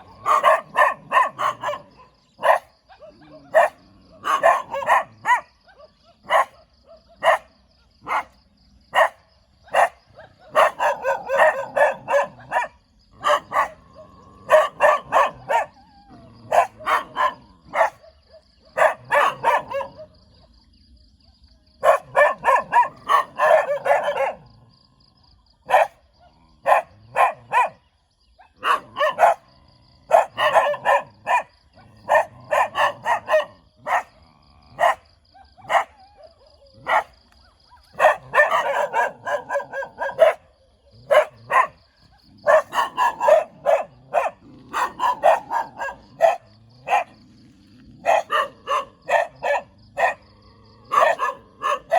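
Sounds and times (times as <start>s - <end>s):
dog barking: 0.0s - 15.8s, 16.4s - 20.5s, 21.8s - 24.6s, 25.6s - 47.3s, 48.0s - 51.9s.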